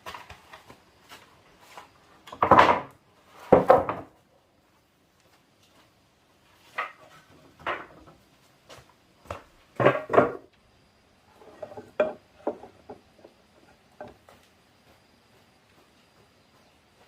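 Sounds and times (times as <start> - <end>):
hard objects knocking and clattering: 2.3 - 2.9, 3.5 - 4.2, 9.8 - 10.5, 11.4 - 13.4.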